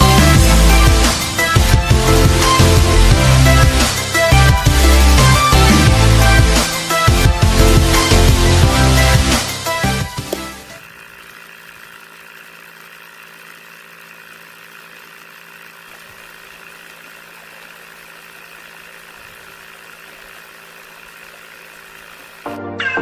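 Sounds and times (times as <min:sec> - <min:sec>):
small motor humming and whining: 0:00.0 - 0:22.6.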